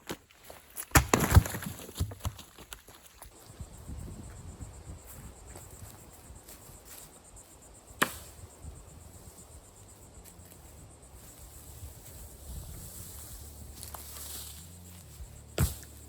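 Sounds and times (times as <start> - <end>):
insects high-pitched drone: 3.3 - 16.0.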